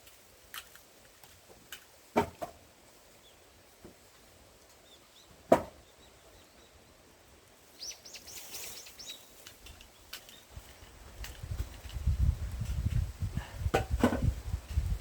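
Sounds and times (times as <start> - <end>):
axe chopping log: 5.5 - 5.8
light high crackling clicks: 9.4 - 12.0.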